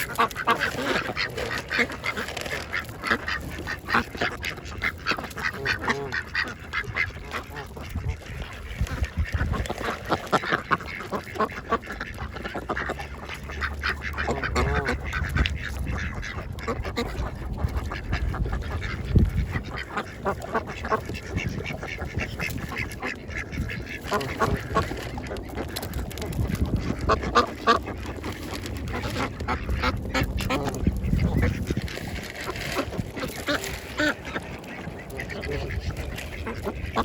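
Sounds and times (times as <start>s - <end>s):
ducks honking: 0.0s - 37.0s
ducks quacking: 0.0s - 37.0s.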